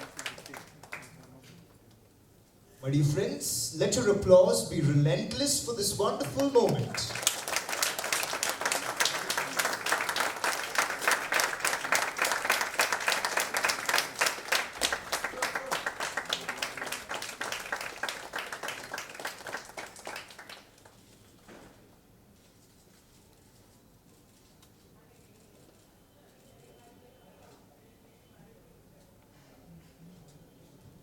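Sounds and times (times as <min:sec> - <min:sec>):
audience applauding: 0:00.0 - 0:01.4, 0:05.3 - 0:21.0.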